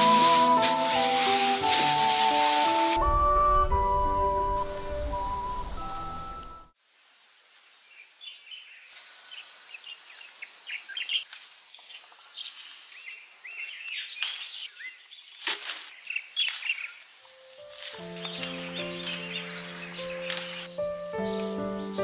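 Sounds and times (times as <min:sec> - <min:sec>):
background music: 0:00.0 - 0:06.8, 0:17.7 - 0:22.0
steady high outdoor hiss: 0:00.0 - 0:14.0, 0:15.9 - 0:22.0
birds chirping: 0:16.0 - 0:22.0.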